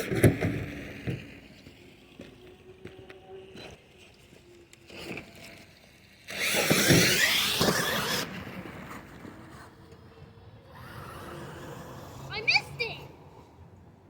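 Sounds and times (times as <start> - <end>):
tyres on ground: 0.0 - 10.1
toy truck motor whine: 3.4 - 8.5.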